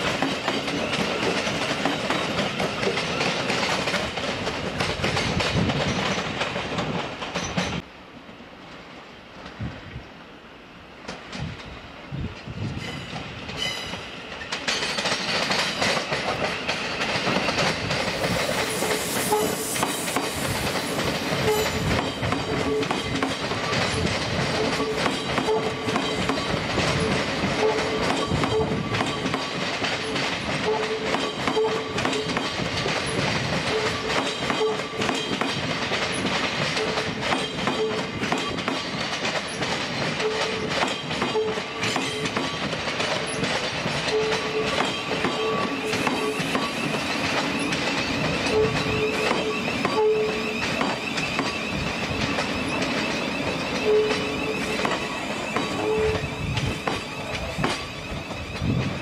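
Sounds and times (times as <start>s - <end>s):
train wheels clattering over points: 13.5s - 59.0s.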